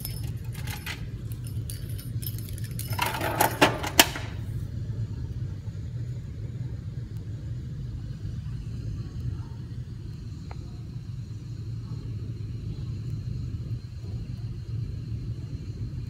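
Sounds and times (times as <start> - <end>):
plastic jingle ball rattling: 0.0 - 4.3
steady low hum: 0.0 - 16.0.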